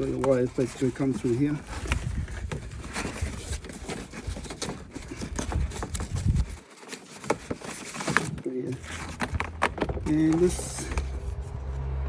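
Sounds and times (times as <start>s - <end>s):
plastic trim clicking and knocking: 7.2s - 11.1s
low rumbling: 8.7s - 12.0s.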